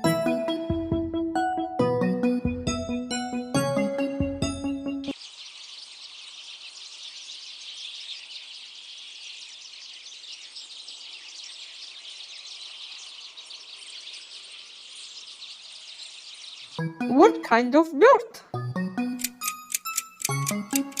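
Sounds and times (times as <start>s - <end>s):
piano music: 0.0s - 5.1s
skylark singing: 19.2s - 21.0s.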